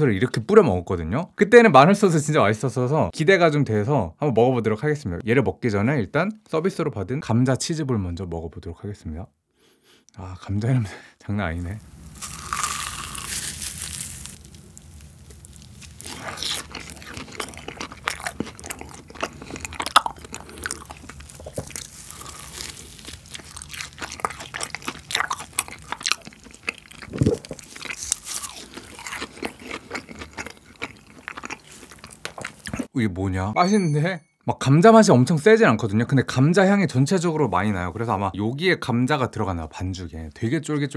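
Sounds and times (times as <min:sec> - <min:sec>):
crisp crunch of biting food: 0:12.2 - 0:32.9
chewing with mouth clicks: 0:14.3 - 0:32.9.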